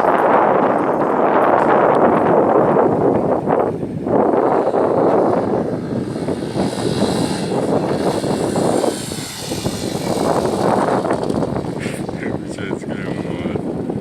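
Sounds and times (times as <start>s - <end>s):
motorcycle engine revving: 4.1s - 14.0s.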